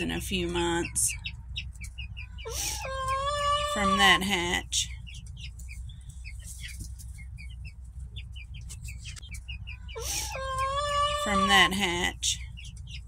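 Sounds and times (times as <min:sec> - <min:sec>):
chicks peeping: 0:00.0 - 0:13.0
low steady hum: 0:00.0 - 0:13.0
drawn-out chicken call: 0:02.2 - 0:04.2, 0:09.7 - 0:11.8.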